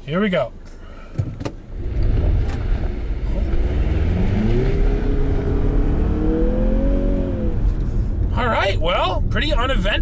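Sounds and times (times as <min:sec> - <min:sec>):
car engine accelerating: 0:01.6 - 0:08.4.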